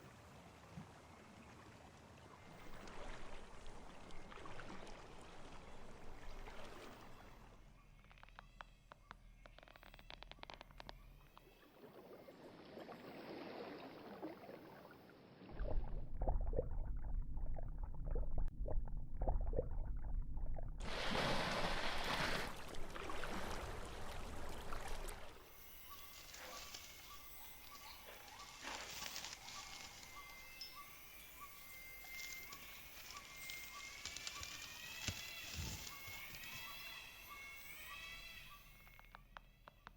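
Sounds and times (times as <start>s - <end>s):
rising whistled calls: 25.6s - 39.1s.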